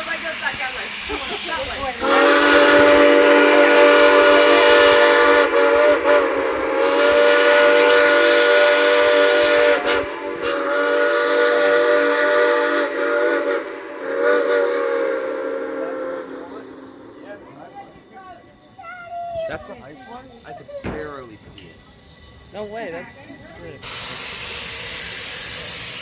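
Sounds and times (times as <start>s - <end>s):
steam locomotive whistle blasts: 1.9s - 17.2s, 23.8s - 26.0s.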